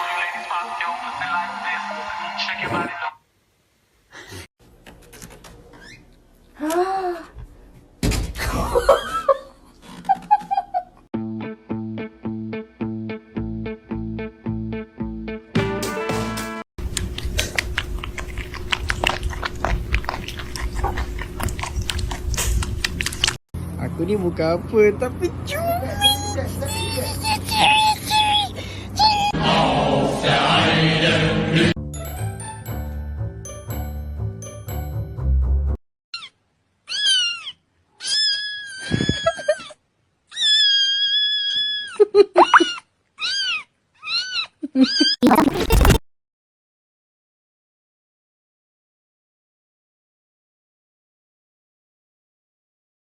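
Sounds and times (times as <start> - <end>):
pet chewing and crunching: 16.8 - 23.4
cat meowing: 36.2 - 39.6.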